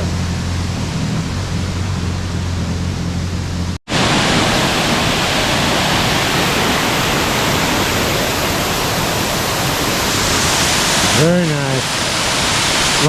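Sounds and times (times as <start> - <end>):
jet-ski engine humming: 0.0 - 13.0
water noise: 0.0 - 13.0
waterfall rushing: 3.9 - 13.0.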